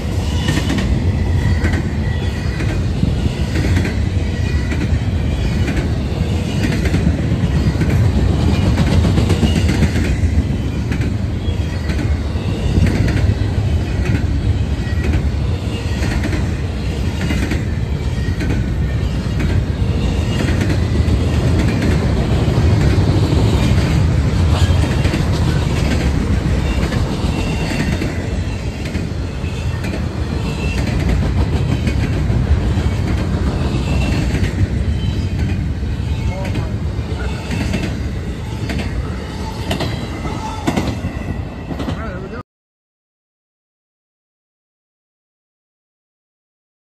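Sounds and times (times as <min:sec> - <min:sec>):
freight train cars rumbling: 0:00.0 - 0:42.4
high wheel squeal: 0:33.7 - 0:41.8.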